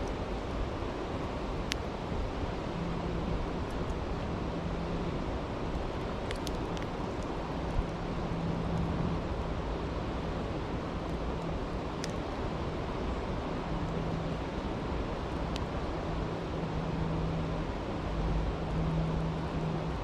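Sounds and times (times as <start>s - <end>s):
stream rushing: 0.0s - 20.0s
campfire popping: 5.6s - 8.1s.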